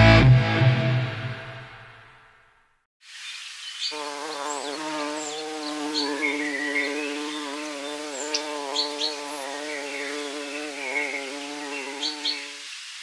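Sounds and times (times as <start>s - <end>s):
bees buzzing: 3.9s - 12.6s.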